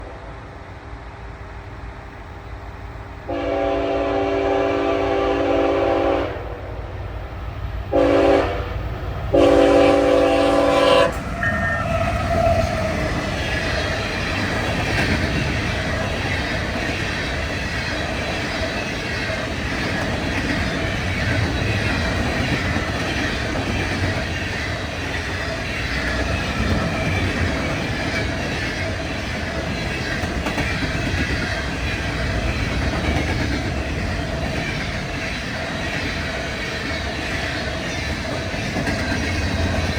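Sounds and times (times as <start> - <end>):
train cars rolling past: 0.0 - 39.9
locomotive air horn: 3.3 - 6.7, 7.9 - 11.9
wheels clacking over rail joints: 11.1 - 39.9.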